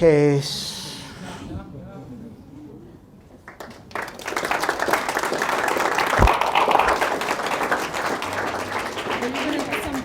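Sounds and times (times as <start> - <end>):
small audience applauding: 3.4 - 10.0.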